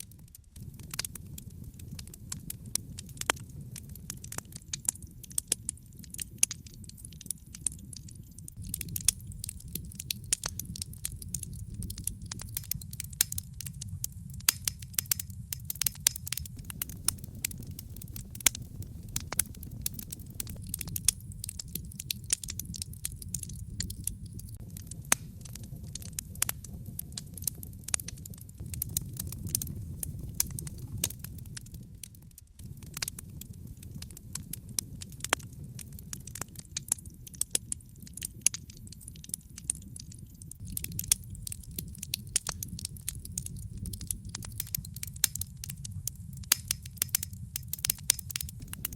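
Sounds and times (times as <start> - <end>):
fire crackling and popping: 0.0 - 48.9
low rumble of flames: 0.0 - 48.9.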